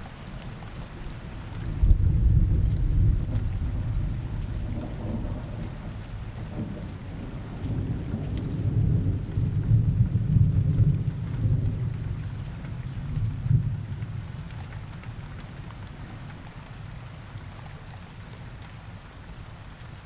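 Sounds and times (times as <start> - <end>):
rain falling: 0.0 - 20.0
low roll of thunder: 1.6 - 16.1.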